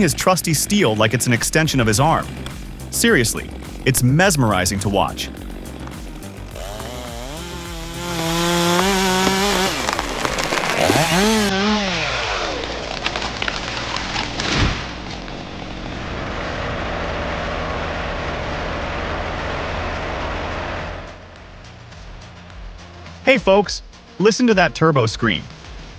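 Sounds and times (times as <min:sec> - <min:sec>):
chainsaw engine revving: 0:00.0 - 0:21.4
sharp crack: 0:01.4 - 0:21.4.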